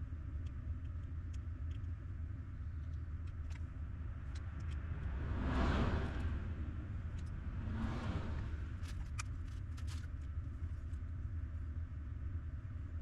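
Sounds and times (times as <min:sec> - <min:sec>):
low vehicle rumble: 0:00.0 - 0:13.0
light clicks: 0:00.3 - 0:05.0
whooshing noise: 0:04.7 - 0:09.2.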